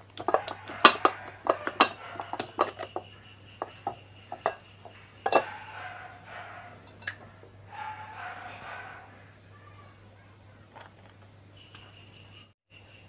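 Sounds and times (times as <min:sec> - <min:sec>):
metal tools clicking and clinking: 0:00.2 - 0:03.0, 0:03.6 - 0:06.0.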